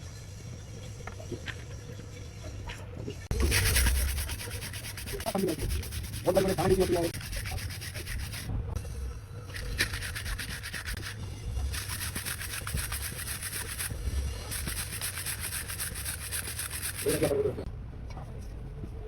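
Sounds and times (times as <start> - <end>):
scrubbing on a clutch plate: 3.3 - 8.5, 9.5 - 17.5.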